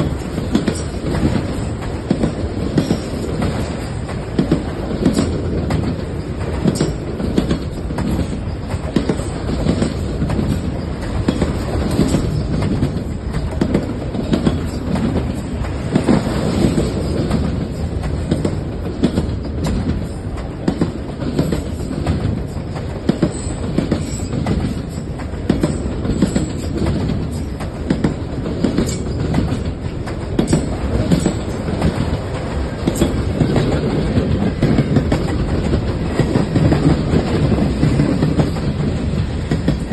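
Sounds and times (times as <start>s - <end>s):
freight train rumble: 0.0s - 39.9s
wheels clacking over rail joints: 0.0s - 39.9s.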